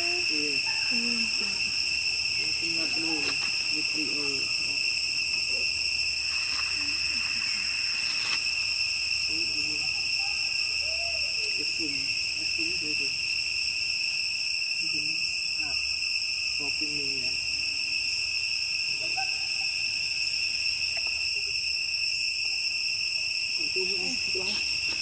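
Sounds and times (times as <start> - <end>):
forest insects droning: 0.0 - 25.0
low hooting calls: 9.3 - 11.9.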